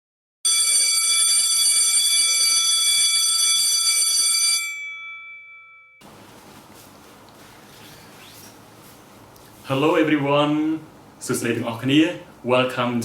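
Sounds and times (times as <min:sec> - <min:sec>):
bell-like chime ringing: 0:04.4 - 0:06.0.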